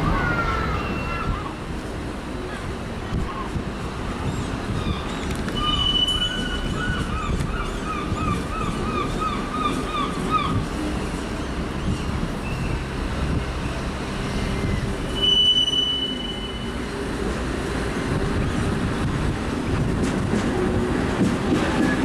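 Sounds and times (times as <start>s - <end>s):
railcars rolling rumble: 0.0s - 22.0s
train wheels squealing: 4.3s - 7.3s, 11.4s - 12.9s, 14.4s - 17.0s.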